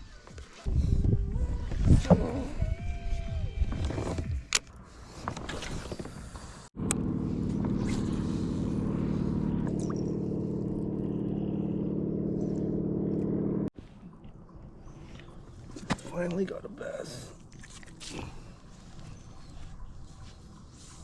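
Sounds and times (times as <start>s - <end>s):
steady engine drone: 6.7s - 13.7s.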